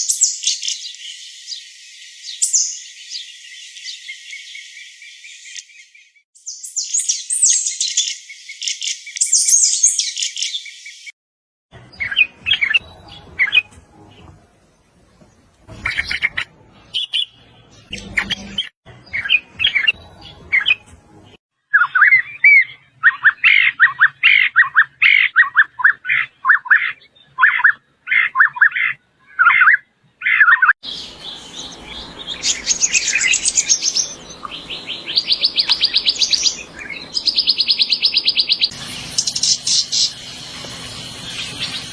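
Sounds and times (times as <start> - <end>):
songbirds singing and calling: 0.0 - 11.1, 11.9 - 41.9.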